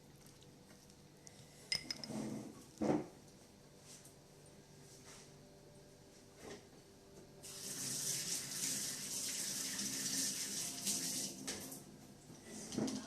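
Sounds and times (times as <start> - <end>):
water running from tap: 7.4 - 11.7.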